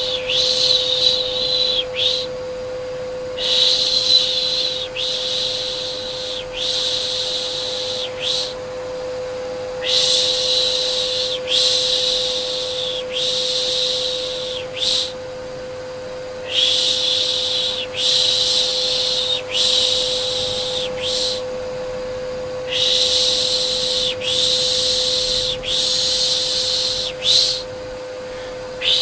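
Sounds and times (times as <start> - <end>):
vacuum cleaner hum: 0.0 - 29.0
person shushing: 3.4 - 8.6, 9.8 - 15.2, 16.4 - 21.5, 28.3 - 29.0.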